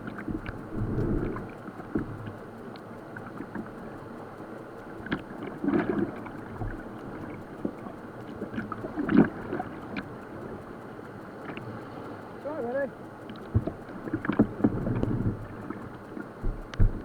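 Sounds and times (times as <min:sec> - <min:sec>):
water splashes and knocks: 0:13.3 - 0:17.0.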